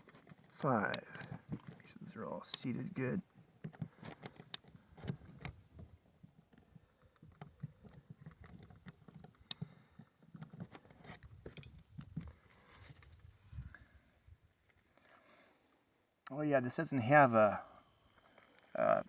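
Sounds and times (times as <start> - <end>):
small handling clicks and knocks: 0.0 - 13.9.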